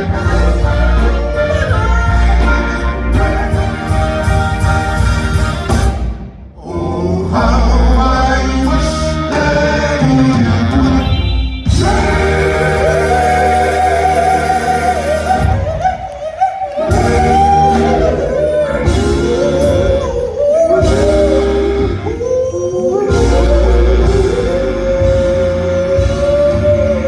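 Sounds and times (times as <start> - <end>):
bass line: 0.0 - 27.0
vocal group singing a slow ballad: 6.6 - 27.0.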